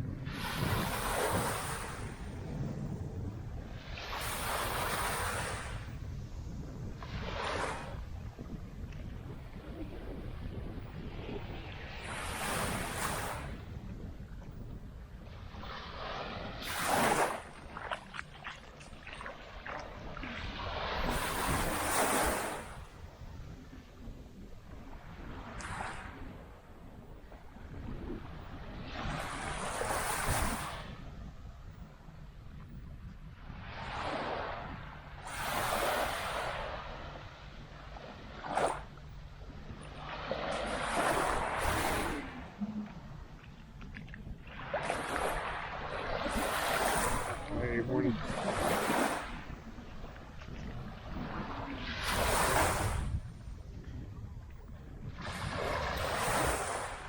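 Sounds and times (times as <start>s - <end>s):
small waves breaking on sand: 0.0s - 14.4s, 15.2s - 31.4s, 33.3s - 54.3s, 55.0s - 57.0s
low wind rumble on microphone: 0.0s - 57.0s
low rumble: 36.2s - 46.0s.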